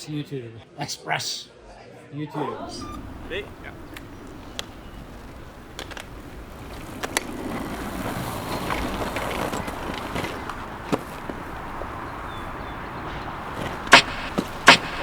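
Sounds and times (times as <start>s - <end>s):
bicycle tyre noise: 3.0s - 15.0s
sharp clicks: 13.1s - 15.0s.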